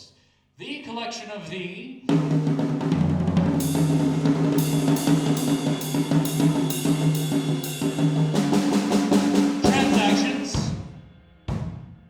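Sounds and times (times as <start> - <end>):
cymbal strokes: 3.6 - 12.0.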